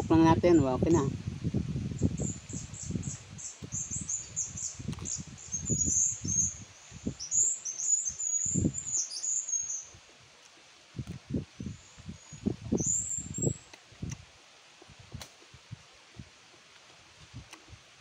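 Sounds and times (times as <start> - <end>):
small birds chirping: 1.9 - 10.0, 11.5 - 13.8.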